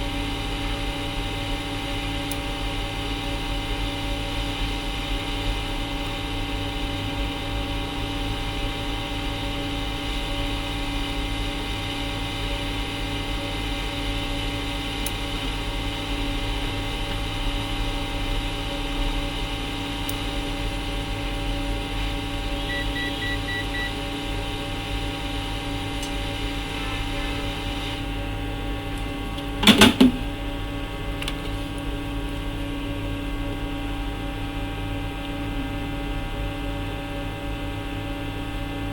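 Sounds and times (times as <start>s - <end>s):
electrical hum: 0.0s - 38.9s
short beeps: 22.7s - 24.0s.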